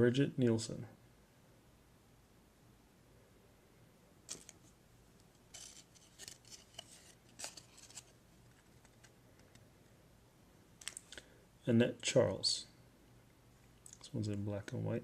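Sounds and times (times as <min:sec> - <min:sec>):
trading cards rustling and clicking: 0:04.3 - 0:09.7, 0:10.8 - 0:11.2.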